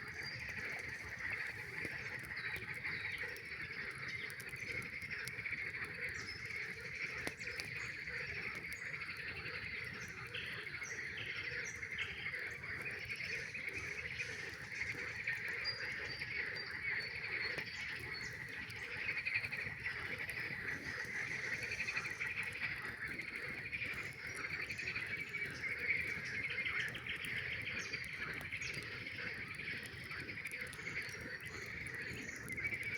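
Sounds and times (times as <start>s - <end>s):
campfire crackling: 0.0s - 32.9s
frogs trilling: 0.0s - 32.9s.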